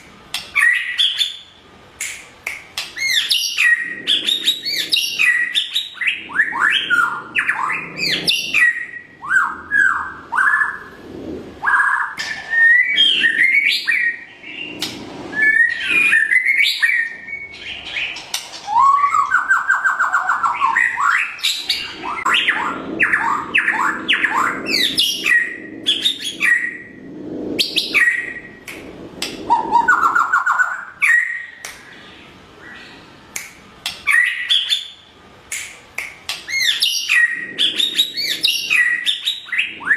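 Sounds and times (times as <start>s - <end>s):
bird singing whistled song: 3.0s - 10.9s, 11.6s - 26.9s, 27.6s - 28.5s, 29.5s - 31.6s, 36.5s - 39.9s.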